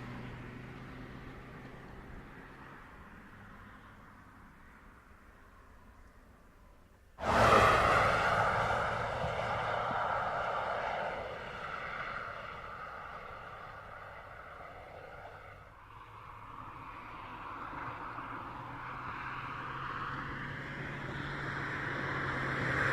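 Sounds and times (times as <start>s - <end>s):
car driving by: 7.2s - 22.9s.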